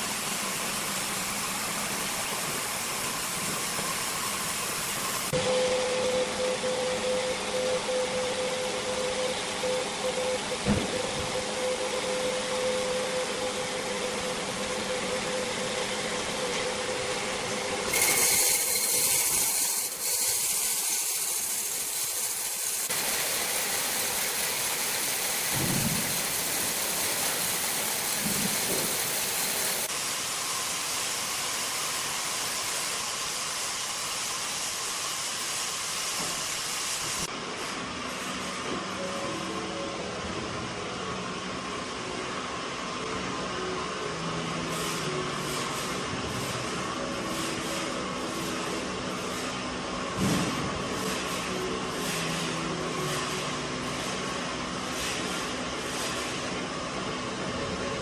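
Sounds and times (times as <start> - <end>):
sawmill machinery hissing: 0.0 - 39.6.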